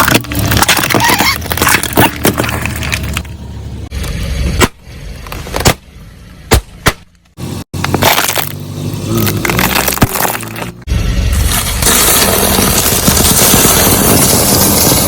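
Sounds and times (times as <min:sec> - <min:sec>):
car low rumble: 0:00.0 - 0:15.0
tyre crushing objects crackling: 0:07.8 - 0:15.0.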